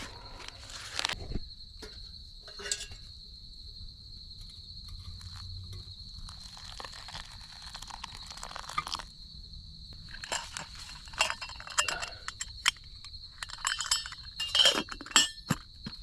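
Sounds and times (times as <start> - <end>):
metal cookware clinking: 1.8 - 3.0, 10.2 - 12.8, 13.4 - 15.6.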